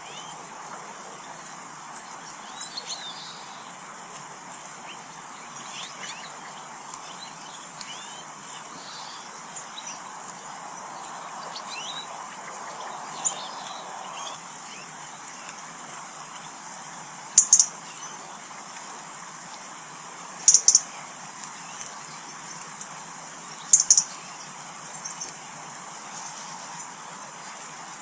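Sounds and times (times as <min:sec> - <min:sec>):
outdoor background noise: 0:00.0 - 0:28.0
small birds chirping: 0:00.0 - 0:28.0
sharp high bird chips: 0:17.4 - 0:17.7, 0:20.5 - 0:20.8.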